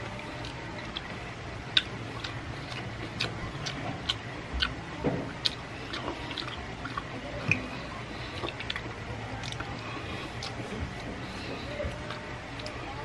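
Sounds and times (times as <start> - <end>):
steady low hum: 0.0 - 13.0
wet mouth clicks while chewing: 1.7 - 4.8, 5.4 - 10.6.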